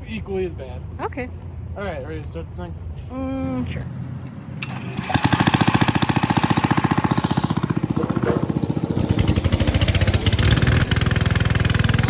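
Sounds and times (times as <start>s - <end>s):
lawn tractor engine running hard: 4.2s - 12.0s.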